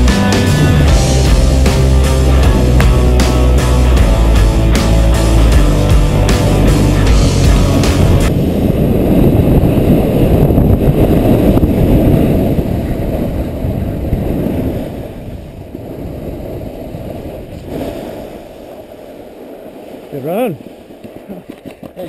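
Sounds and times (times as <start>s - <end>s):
music: 0.0s - 8.3s
wind buffeting microphone: 0.6s - 22.0s.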